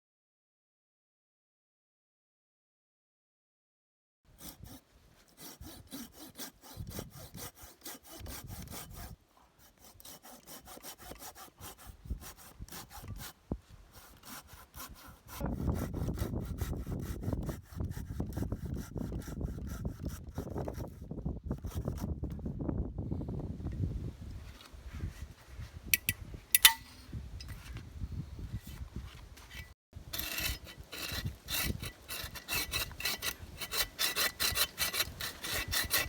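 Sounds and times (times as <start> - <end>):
hand saw cutting wood: 4.3 - 22.1, 26.0 - 26.8, 29.4 - 36.0.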